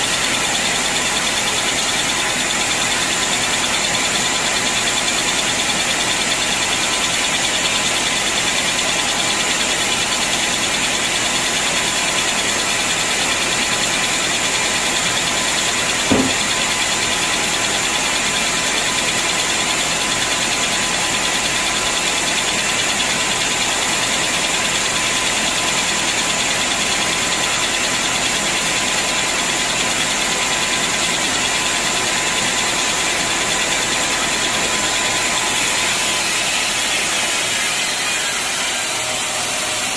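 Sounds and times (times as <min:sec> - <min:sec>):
sawmill machinery humming: 0:00.0 - 0:39.9
knock: 0:16.1 - 0:16.7.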